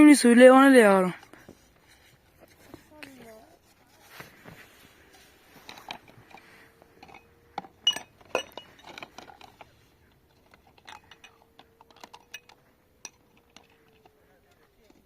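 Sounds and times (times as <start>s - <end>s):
dishes clinking: 7.0s - 9.6s.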